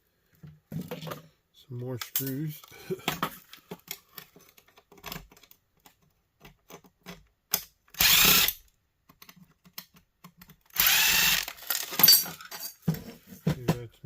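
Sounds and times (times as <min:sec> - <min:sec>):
clicks of small parts handled: 0:02.0 - 0:07.7
power drill running: 0:08.0 - 0:08.6, 0:10.7 - 0:11.8.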